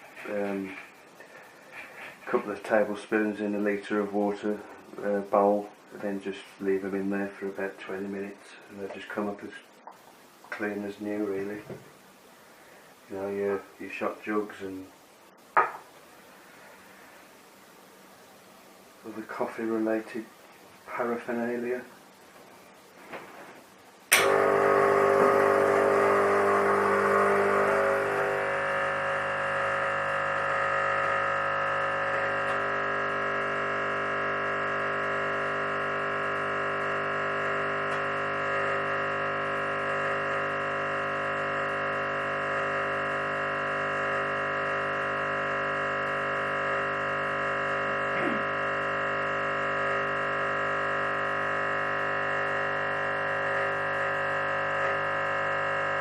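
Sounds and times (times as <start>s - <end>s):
espresso machine pump humming: 24.1s - 56.0s.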